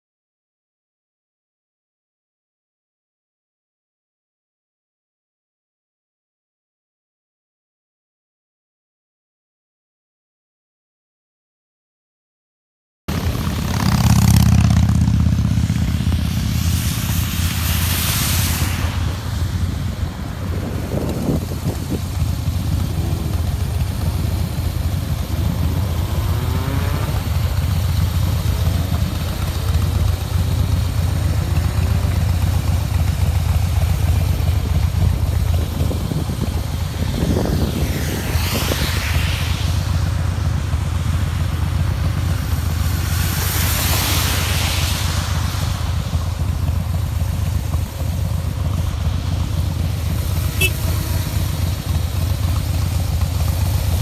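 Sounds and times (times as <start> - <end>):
motorcycle engine rumbling: 13.1 - 54.0
rushing air and road noise: 13.1 - 54.0.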